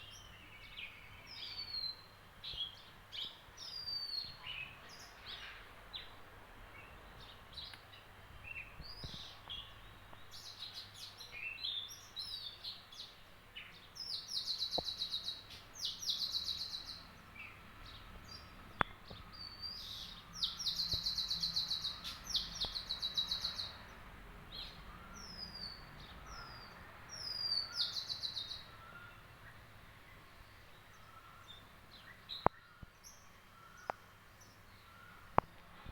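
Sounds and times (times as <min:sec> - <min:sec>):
songbirds chirping: 0:00.0 - 0:35.9.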